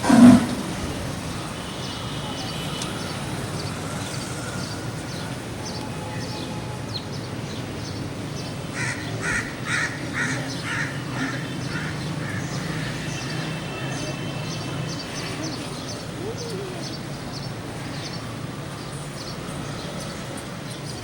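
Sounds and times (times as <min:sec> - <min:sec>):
crow cawing: 0:08.7 - 0:13.0.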